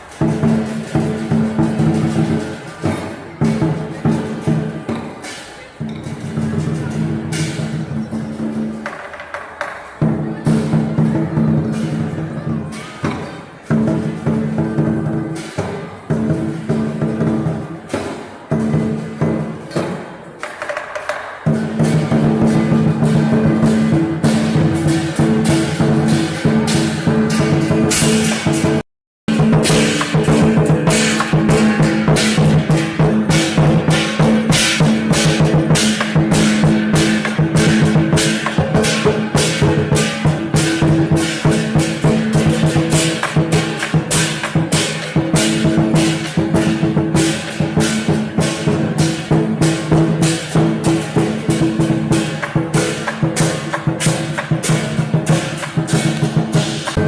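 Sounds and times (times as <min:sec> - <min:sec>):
crashing cymbals: 0:00.0 - 0:08.9, 0:21.1 - 0:57.0
heavy drum beats: 0:00.0 - 0:57.0.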